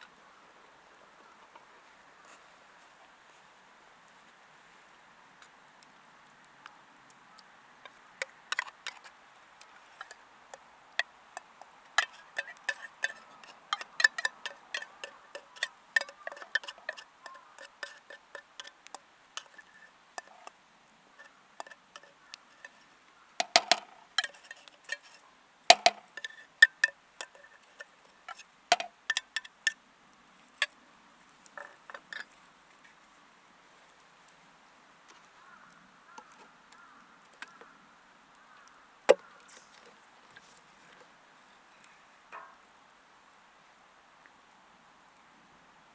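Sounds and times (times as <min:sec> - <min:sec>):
cooking utensils clinking: 0:12.0 - 0:20.5, 0:23.4 - 0:29.5.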